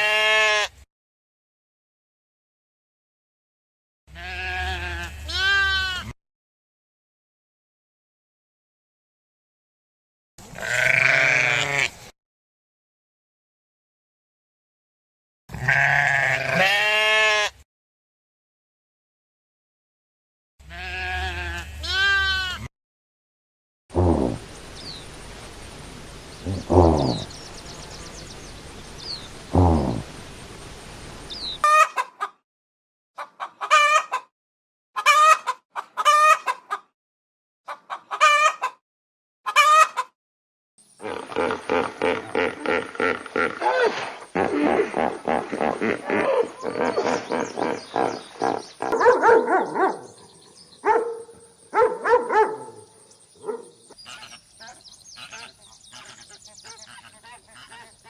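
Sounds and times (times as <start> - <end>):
dog barking: 48.9 - 50.1, 50.8 - 53.8.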